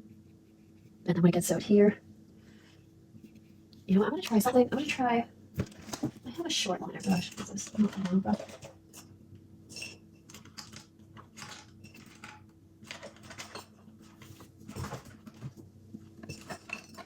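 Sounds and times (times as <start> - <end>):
paintbrushes clicking and clattering: 5.8 - 9.1, 9.7 - 15.4.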